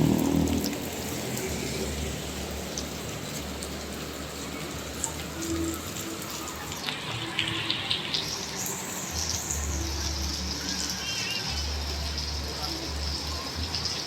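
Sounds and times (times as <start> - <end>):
rain falling: 0.0 - 14.0
sharp water drips: 0.0 - 14.0
high-pitched hiss of water: 5.4 - 13.4.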